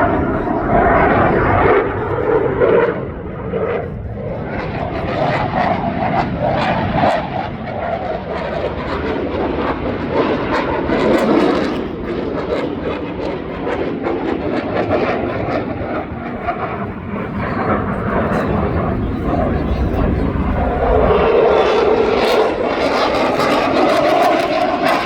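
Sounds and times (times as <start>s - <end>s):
airplane engine roar: 0.0s - 25.0s.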